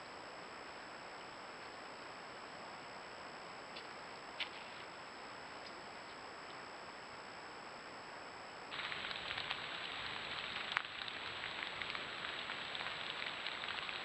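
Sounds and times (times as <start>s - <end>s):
rain pattering on vegetation: 8.7s - 14.0s.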